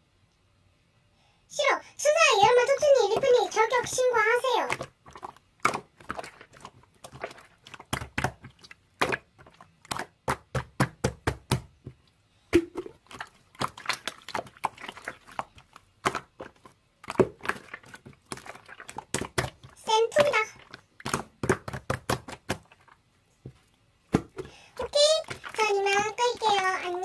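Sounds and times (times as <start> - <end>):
slime clicking and popping: 4.6 - 11.8, 12.5 - 23.0.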